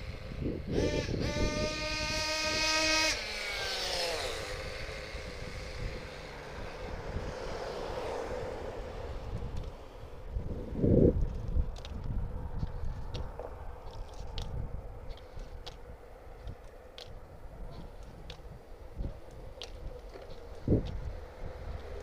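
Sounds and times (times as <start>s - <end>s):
model car nitro engine revving: 0.0s - 9.3s.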